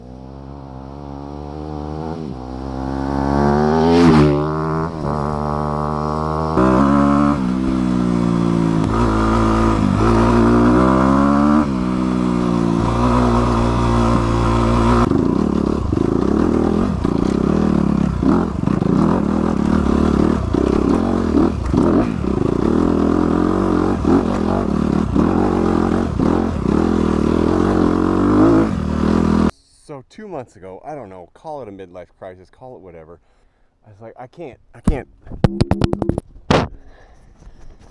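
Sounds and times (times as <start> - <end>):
dirt bike engine revving: 0.0 - 29.5.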